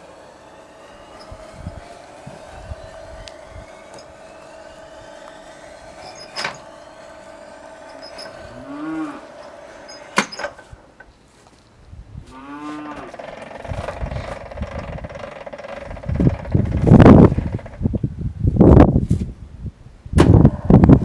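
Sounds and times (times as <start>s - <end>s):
short rising and falling tone: 0.0s - 11.0s
electric drive whine: 0.0s - 18.2s, 20.2s - 21.0s.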